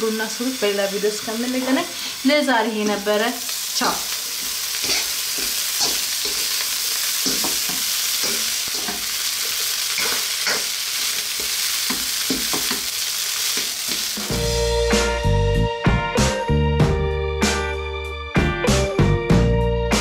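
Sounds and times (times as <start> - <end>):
rice sizzling in a wok: 0.0 - 14.9
spoon scraping a wok: 3.8 - 14.2
music: 14.2 - 20.0.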